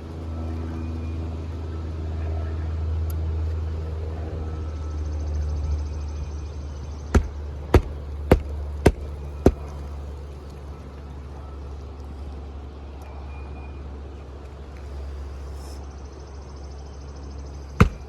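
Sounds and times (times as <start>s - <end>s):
hammer driving nail into shingle: 7.2s - 9.7s, 17.8s - 18.0s.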